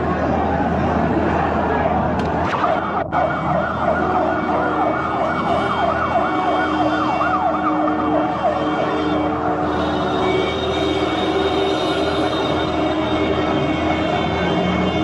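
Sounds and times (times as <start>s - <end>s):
emergency siren wailing: 0.0s - 15.0s.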